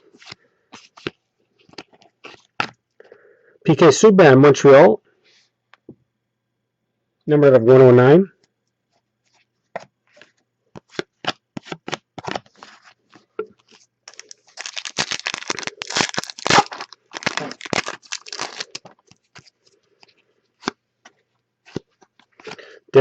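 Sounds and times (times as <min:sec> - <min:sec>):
cards clicking and snapping: 0:10.8 - 0:12.7
wrapper tearing and crinkling: 0:14.1 - 0:19.5.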